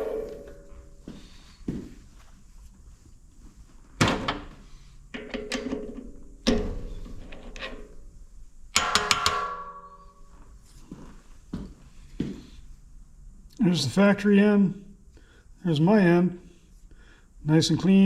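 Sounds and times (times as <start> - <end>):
metal parts clanking with ringing: 0.0 - 1.1, 8.8 - 10.3.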